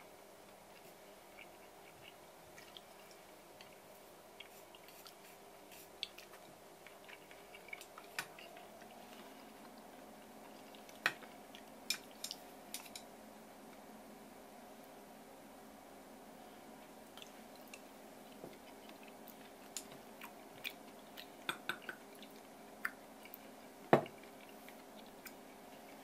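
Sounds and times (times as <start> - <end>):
faint steady hum: 0.0 - 26.0
person chewing: 0.8 - 3.8, 4.4 - 13.0, 17.0 - 26.0
chopsticks clicking on dishes: 11.9 - 13.1.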